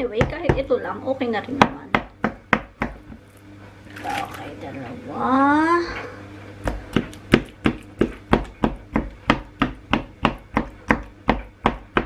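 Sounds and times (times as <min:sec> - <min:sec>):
utensil knocking on cutting board: 0:06.6 - 0:12.0.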